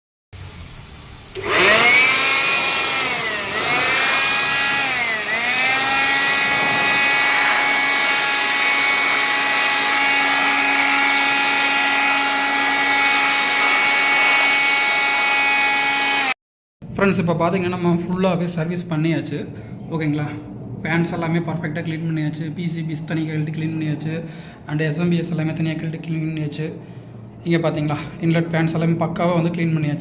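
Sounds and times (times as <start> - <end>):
electric air blower whining: 0.4 - 16.4.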